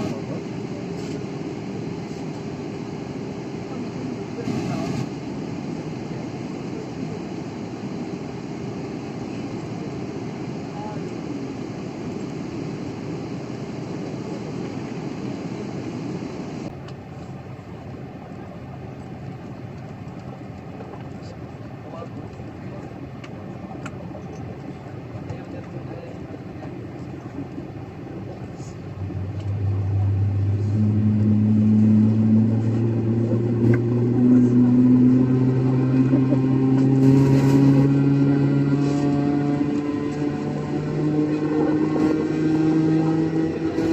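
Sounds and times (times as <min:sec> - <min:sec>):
airliner cabin hum: 0:00.0 - 0:42.3.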